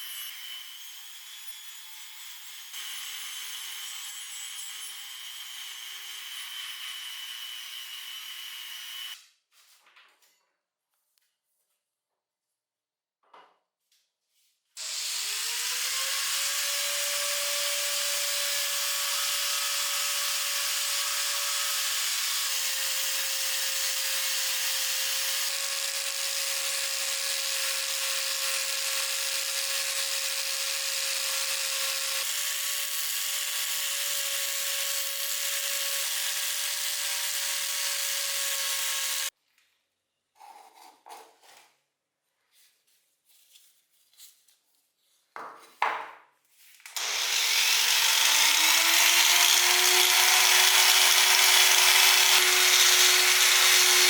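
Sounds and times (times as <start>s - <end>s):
electric power tool whining: 14.8s - 39.3s, 46.9s - 54.0s.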